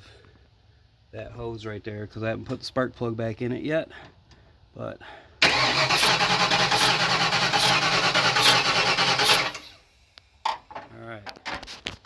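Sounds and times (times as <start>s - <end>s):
air gushing from hose: 5.4s - 9.8s
engine cranking on starter: 5.4s - 9.8s.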